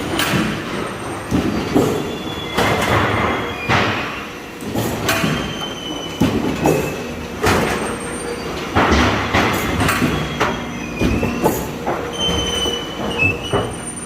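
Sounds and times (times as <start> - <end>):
high metallic squeals: 10.1 - 14.0.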